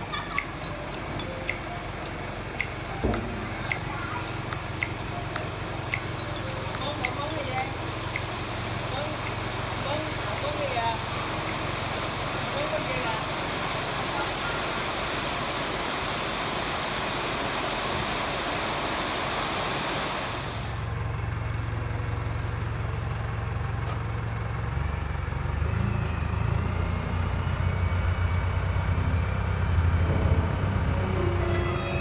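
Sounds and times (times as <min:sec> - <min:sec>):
excavator diesel engine: 0:00.0 - 0:32.0
heavy rain hissing: 0:06.0 - 0:20.9.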